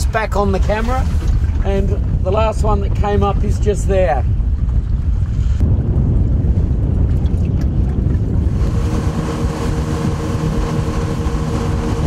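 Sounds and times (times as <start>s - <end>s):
wind on microphone: 0.0s - 12.0s
motorboat engine droning: 8.1s - 12.0s.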